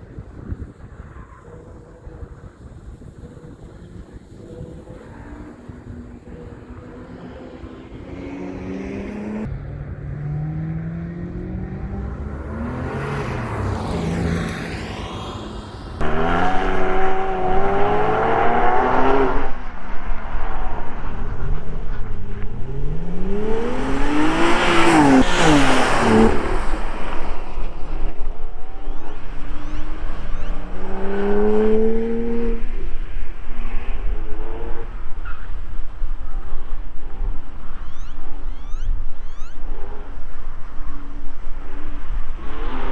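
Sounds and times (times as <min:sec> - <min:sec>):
car engine revving: 0:03.3 - 0:42.9
car passing by: 0:04.2 - 0:35.6.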